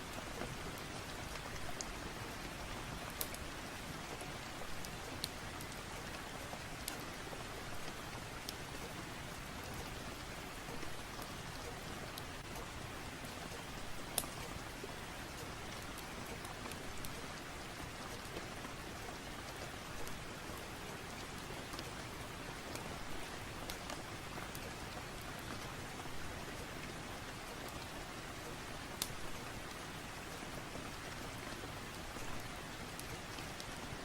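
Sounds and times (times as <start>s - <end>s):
steady rain: 0.0s - 34.0s
wood fire crackling: 3.0s - 3.4s, 26.4s - 34.0s.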